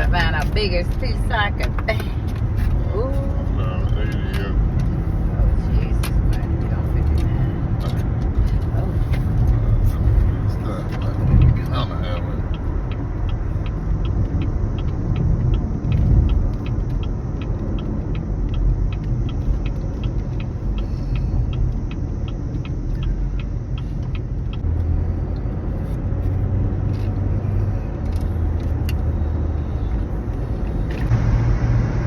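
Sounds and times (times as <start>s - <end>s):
car cabin rumble: 0.0s - 32.0s
faint rapid ticking: 9.4s - 25.5s.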